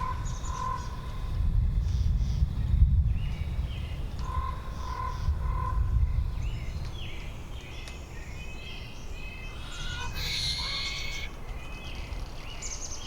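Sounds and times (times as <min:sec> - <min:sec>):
low wind noise: 0:00.0 - 0:13.0
high bird chirps: 0:08.7 - 0:12.0.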